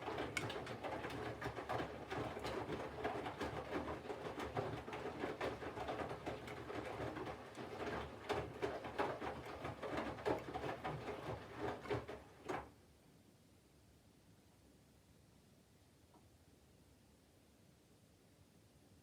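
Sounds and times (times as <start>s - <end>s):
washing machine tumbling laundry: 0.0s - 12.8s.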